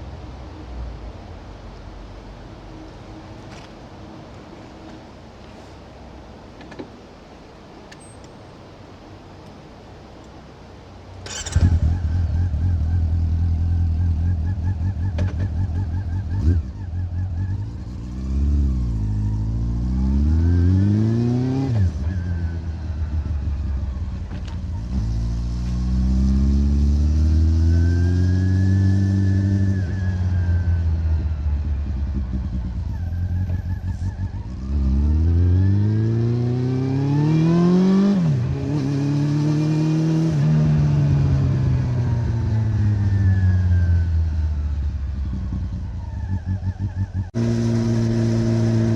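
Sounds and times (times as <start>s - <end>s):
motorcycle engine revving: 11.2s - 48.9s.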